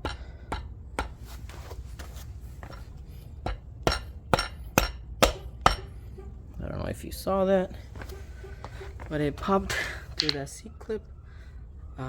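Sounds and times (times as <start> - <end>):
rubber mallet knocking on metal shaft: 3.4 - 5.9.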